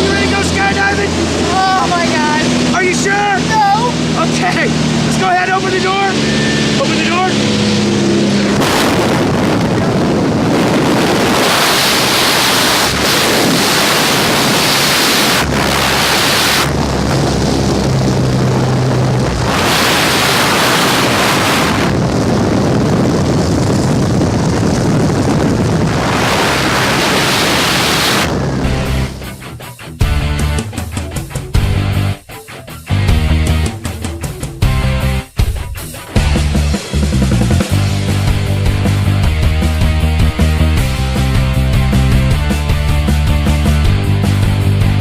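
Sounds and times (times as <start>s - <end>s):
wind rushing on microphone: 0.0s - 29.4s.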